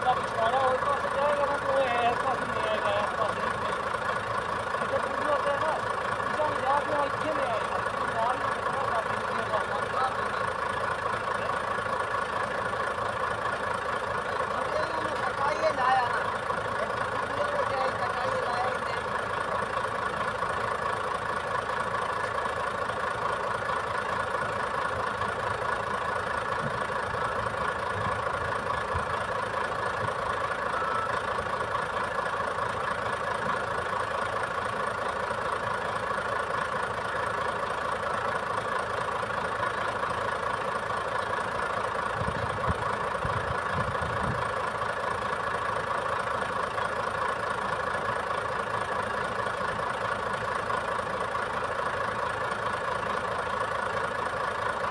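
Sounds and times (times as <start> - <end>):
truck engine idling: 0.0 - 54.9.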